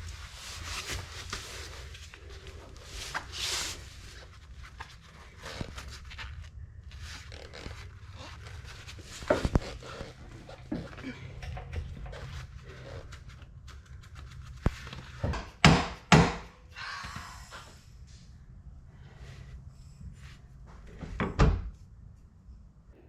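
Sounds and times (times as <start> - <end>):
rustling and scraping: 0.0 - 15.6.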